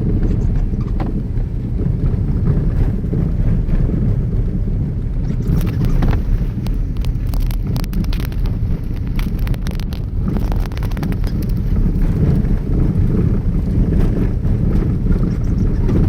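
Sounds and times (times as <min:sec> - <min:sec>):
road and engine rumble: 0:00.0 - 0:16.0
wind on microphone: 0:00.0 - 0:16.0
short irregular clicks: 0:05.3 - 0:12.1.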